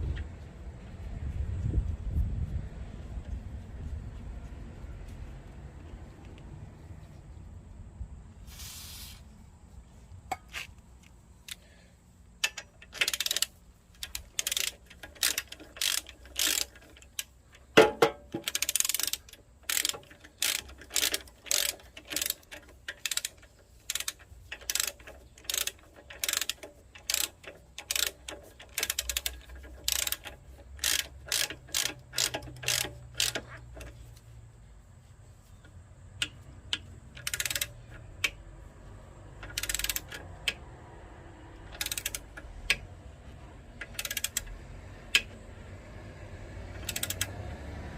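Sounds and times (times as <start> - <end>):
ratchet wrench clicking: 12.3 - 34.3, 36.1 - 38.4, 39.2 - 40.8, 41.6 - 45.4, 46.6 - 47.6.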